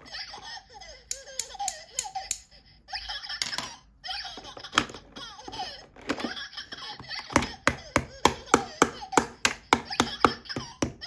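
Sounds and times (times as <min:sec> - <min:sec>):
high-pitched voice giggling: 0:00.0 - 0:08.0.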